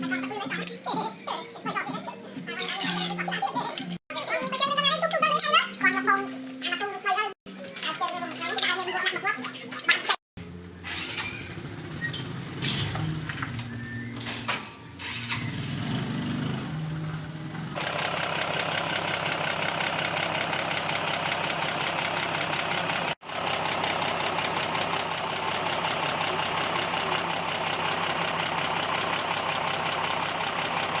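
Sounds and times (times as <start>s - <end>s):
diesel engine clattering: 0.0s - 6.2s, 7.5s - 31.0s.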